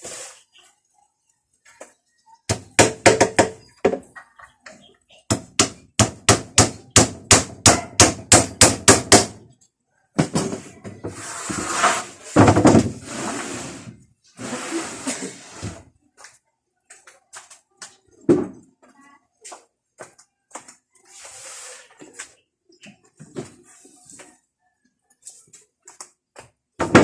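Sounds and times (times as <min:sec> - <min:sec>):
hammer striking wood: 0:02.5 - 0:04.0, 0:05.3 - 0:09.4.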